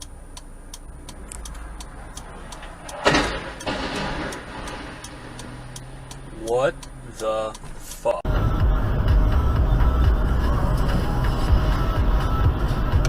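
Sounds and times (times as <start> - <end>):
car engine rumble: 0.0 - 13.0
steady ticking: 0.0 - 13.0
loud bang or crunch: 3.0 - 5.3.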